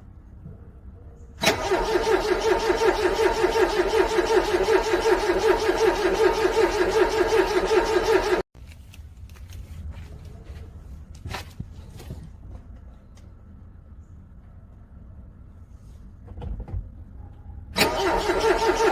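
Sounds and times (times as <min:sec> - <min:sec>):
starter motor cranking engine: 0:01.4 - 0:08.5, 0:17.8 - 0:18.9.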